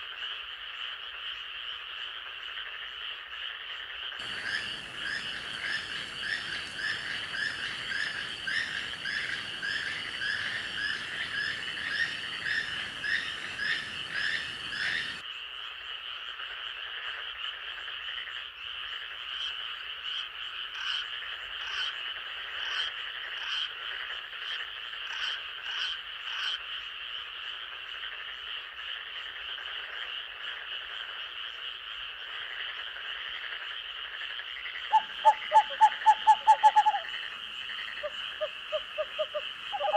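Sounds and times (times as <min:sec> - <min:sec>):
short high frog calls: 0:04.2 - 0:15.2, 0:34.6 - 0:39.9
frogs calling: 0:04.2 - 0:15.4, 0:29.2 - 0:39.9.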